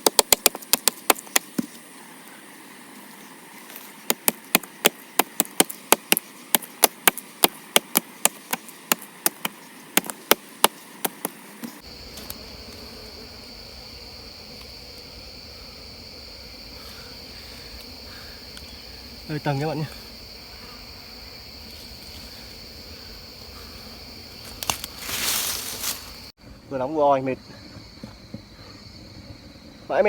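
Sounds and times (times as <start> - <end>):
blade chopping into tree stump: 0.0 - 1.7
high-pitched insect drone: 11.5 - 30.0.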